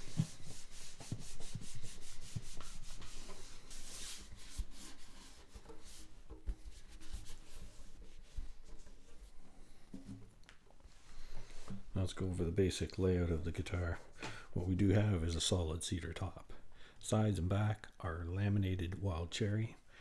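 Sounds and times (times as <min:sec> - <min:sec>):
cloth rubbing on guitar body: 0:00.0 - 0:12.4.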